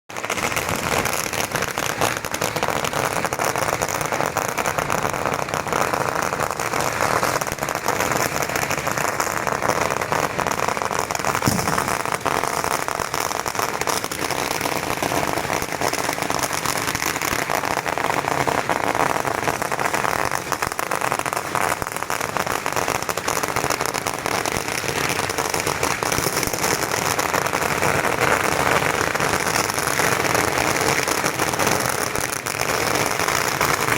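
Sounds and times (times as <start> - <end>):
firecrackers crackling and popping: 0.1 - 33.9
low thud: 11.4 - 12.8.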